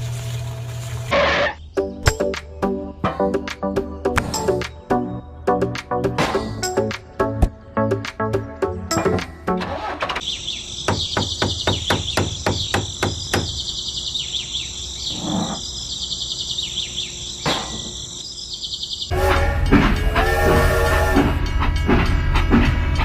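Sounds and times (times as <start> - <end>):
insects and birds chirping: 1.1 - 8.5, 9.8 - 19.1
music: 1.7 - 10.0, 19.1 - 23.0
sharp knocks: 10.9 - 13.6.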